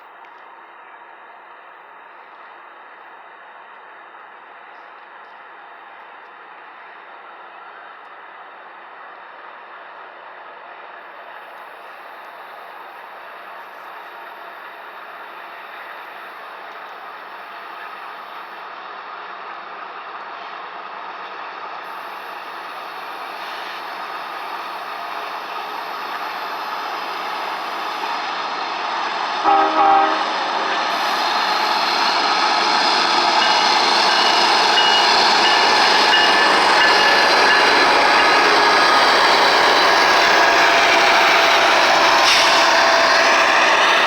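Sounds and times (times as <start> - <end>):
freight train passing: 0.0 - 44.0
two-note train horn: 29.4 - 31.1.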